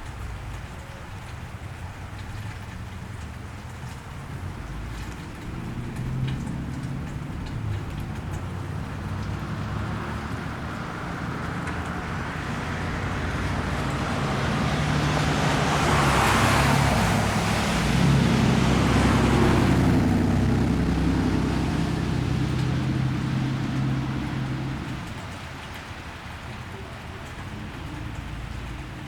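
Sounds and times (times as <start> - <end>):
low engine hum: 0.0 - 29.0
tyres hissing on wet road: 0.0 - 29.0.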